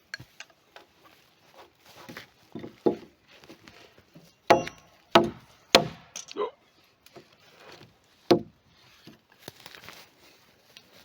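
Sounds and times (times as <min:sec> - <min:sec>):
tool knocking on wood: 0:04.5 - 0:06.0.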